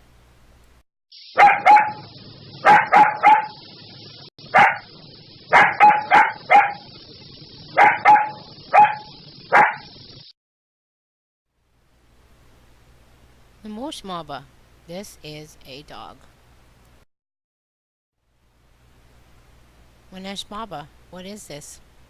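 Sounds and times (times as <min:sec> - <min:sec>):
dog barking: 0:01.4 - 0:03.6, 0:04.5 - 0:04.9, 0:05.5 - 0:06.9, 0:07.7 - 0:09.9.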